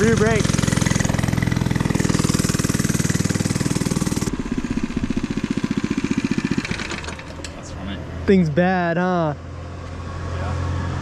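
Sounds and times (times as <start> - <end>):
mini bike engine running: 0.0 - 7.6.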